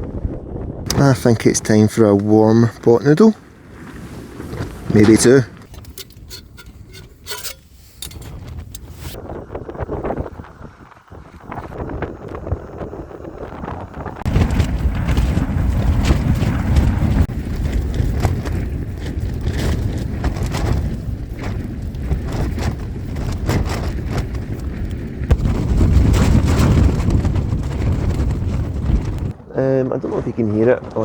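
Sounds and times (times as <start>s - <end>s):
strong wind buffeting microphone: 0.0s - 31.0s
tent fabric flapping: 3.2s - 5.9s, 13.8s - 29.4s.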